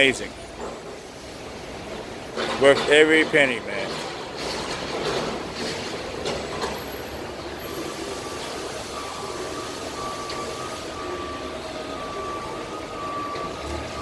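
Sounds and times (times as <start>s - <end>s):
traffic hissing on wet road: 0.0s - 14.0s
faint steady whine: 7.0s - 14.0s.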